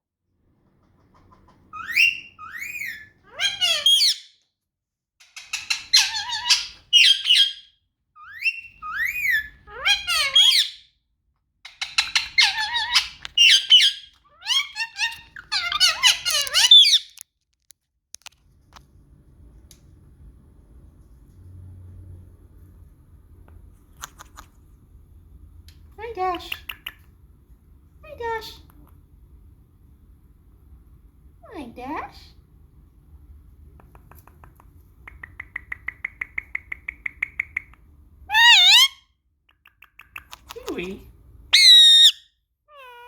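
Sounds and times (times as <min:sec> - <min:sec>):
parrot squawking and whistling: 0:01.7 - 0:04.3, 0:05.5 - 0:10.8, 0:11.8 - 0:17.1, 0:38.3 - 0:39.1, 0:41.5 - 0:43.0.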